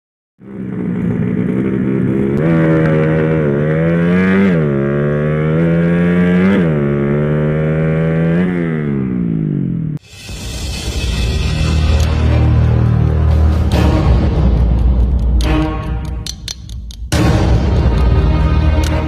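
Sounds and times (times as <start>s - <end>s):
motorcycle engine accelerating: 0.4s - 10.0s.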